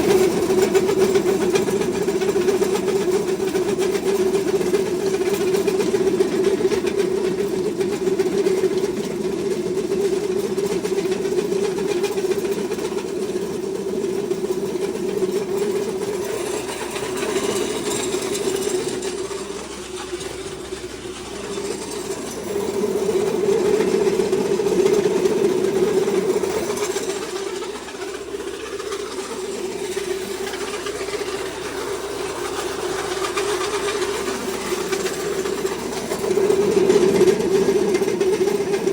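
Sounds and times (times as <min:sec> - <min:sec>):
feed mill machine hum: 0:00.0 - 0:38.9.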